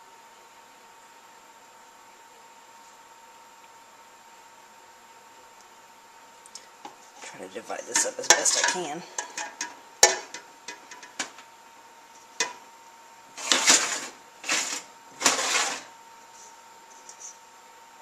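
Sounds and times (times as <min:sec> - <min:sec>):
kitchenware clinking against glass: 0:07.2 - 0:10.4.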